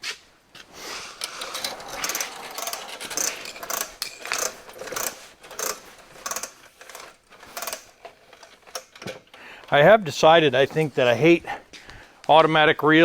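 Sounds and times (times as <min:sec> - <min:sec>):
hose reel ratchet clicking: 0:01.1 - 0:09.8.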